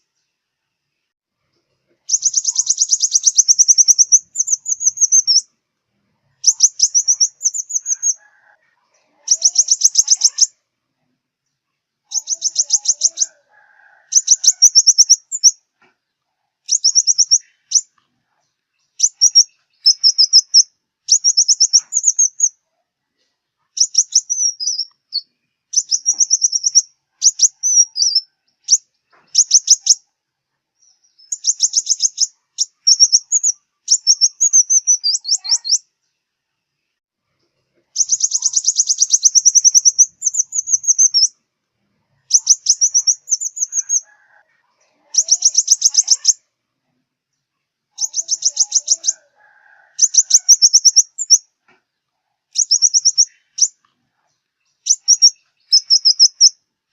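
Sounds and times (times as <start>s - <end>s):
bird twittering: 2.1s - 5.5s, 6.4s - 8.5s, 9.2s - 10.6s, 12.1s - 15.6s, 16.7s - 17.9s, 19.0s - 22.6s, 23.8s - 30.0s, 30.8s - 35.8s, 38.0s - 41.4s, 42.2s - 44.4s, 45.1s - 46.4s, 48.0s - 51.4s, 52.5s - 53.8s, 54.8s - 56.6s.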